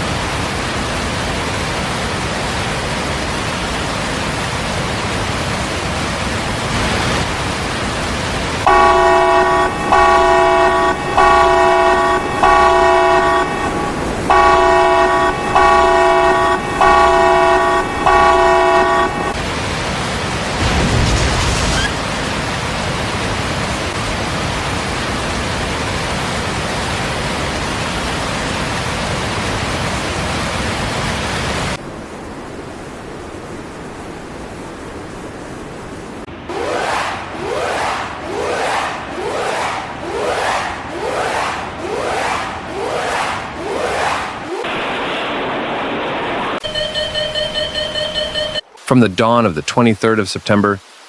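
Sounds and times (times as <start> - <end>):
steady rushing noise: 0.4 - 27.0, 31.6 - 46.6
multi-tone horn blasts: 8.7 - 19.4, 38.6 - 44.7.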